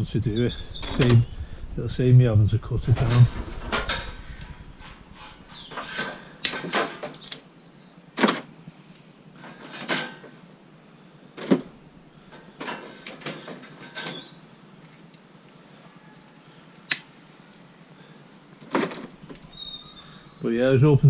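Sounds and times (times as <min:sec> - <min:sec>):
scraping and rustling: 0:00.8 - 0:07.2.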